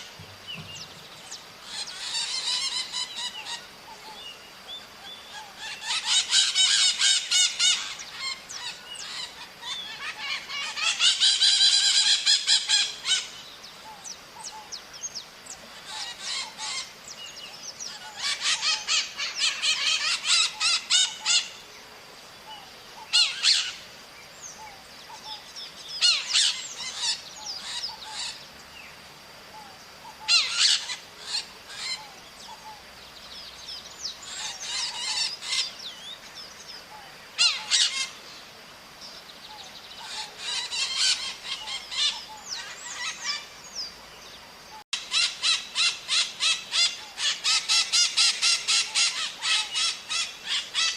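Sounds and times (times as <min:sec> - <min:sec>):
parrots screeching: 0:01.6 - 0:03.6, 0:05.3 - 0:13.3, 0:15.8 - 0:16.9, 0:17.9 - 0:21.6, 0:23.1 - 0:23.8, 0:26.0 - 0:28.4, 0:30.2 - 0:32.1, 0:34.3 - 0:35.7, 0:37.4 - 0:38.2, 0:40.0 - 0:43.5, 0:45.0 - 0:50.9.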